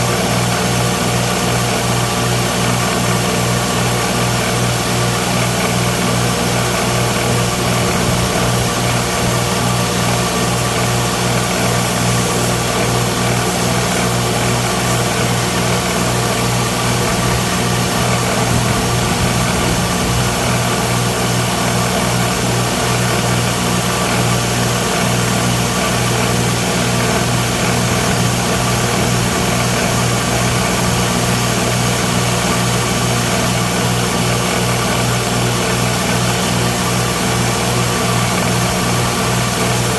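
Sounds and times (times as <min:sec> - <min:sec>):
electric grinder running: 0:05.5 - 0:33.6.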